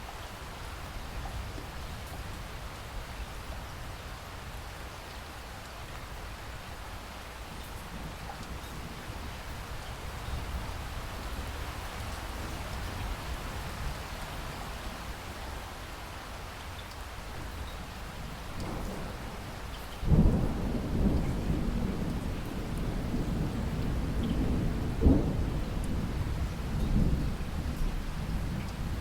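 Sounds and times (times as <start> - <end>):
steady rain falling: 0.0 - 29.0
thunder rumbling: 20.1 - 29.0.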